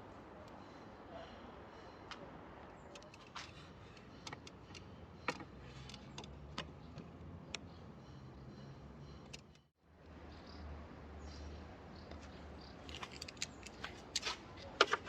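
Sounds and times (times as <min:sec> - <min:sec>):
clicks of hand tools and parts: 0:12.1 - 0:15.0.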